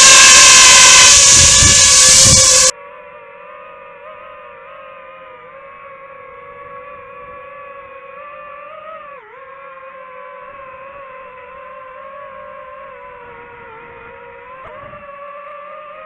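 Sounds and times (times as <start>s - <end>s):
drone propellers whining: 0.0s - 2.7s.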